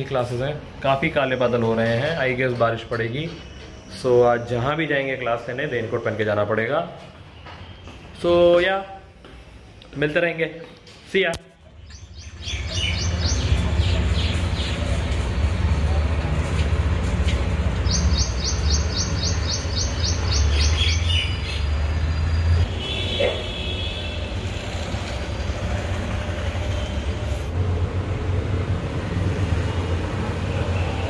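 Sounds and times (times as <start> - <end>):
birds chirping: 1.0 - 8.9, 11.7 - 15.2, 17.8 - 23.8.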